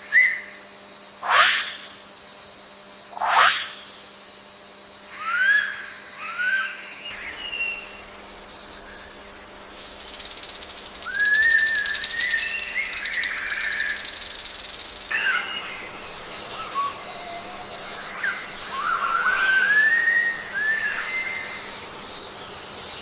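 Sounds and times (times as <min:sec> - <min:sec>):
insect trill: 0:00.0 - 0:23.0
bird warbling: 0:07.1 - 0:21.8
bird whistles: 0:11.0 - 0:14.4.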